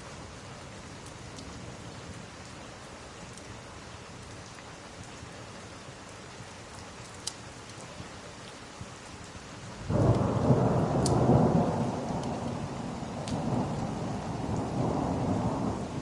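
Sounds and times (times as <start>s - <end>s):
steady rain: 0.0s - 16.0s
faint sharp ticks: 7.0s - 7.8s, 10.0s - 10.3s, 11.0s - 11.2s, 13.2s - 13.9s.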